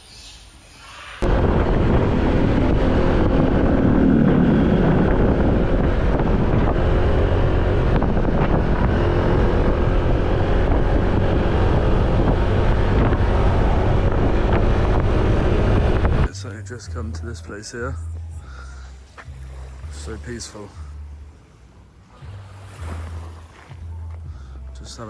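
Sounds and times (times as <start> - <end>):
wind buffeting microphone: 1.2 - 16.3.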